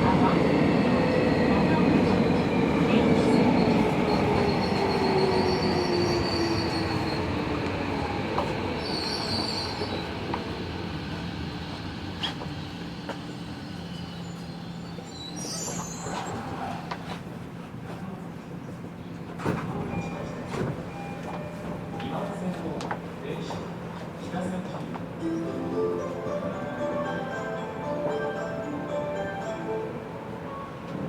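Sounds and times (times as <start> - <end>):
wheel squeal: 13.9 - 16.4.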